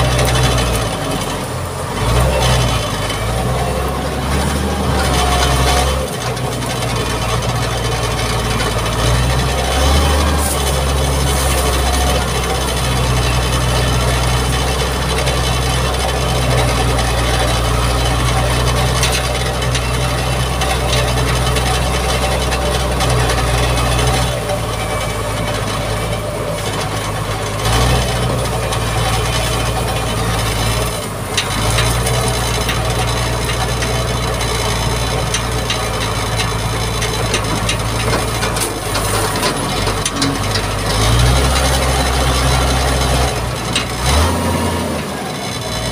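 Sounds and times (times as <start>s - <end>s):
diesel engine under load: 0.0s - 45.9s
blade scraping dirt: 0.1s - 45.9s.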